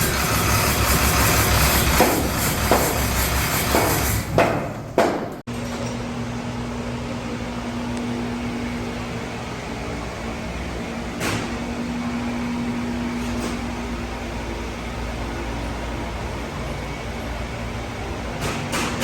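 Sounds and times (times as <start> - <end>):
diesel engine running: 0.0 - 4.0.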